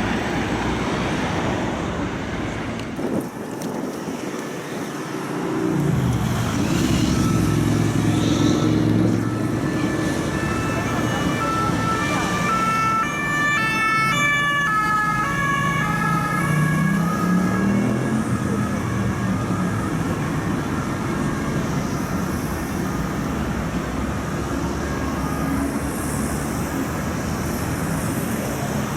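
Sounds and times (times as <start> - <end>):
road traffic noise: 0.0 - 28.9
engine revving: 5.7 - 12.1
two-tone police siren: 6.1 - 26.2.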